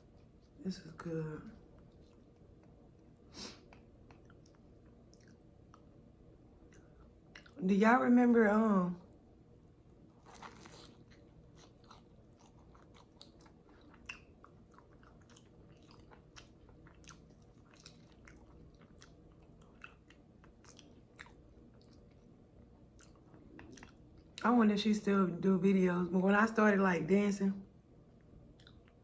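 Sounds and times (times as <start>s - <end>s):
chewing crunchy fried pastry: 1.6s - 6.0s, 6.6s - 7.6s, 9.8s - 24.4s, 28.1s - 29.0s.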